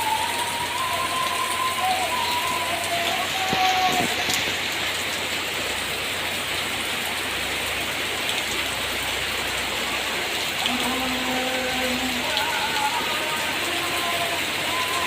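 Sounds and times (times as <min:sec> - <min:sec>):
rain pattering on surfaces: 0:00.0 - 0:15.0.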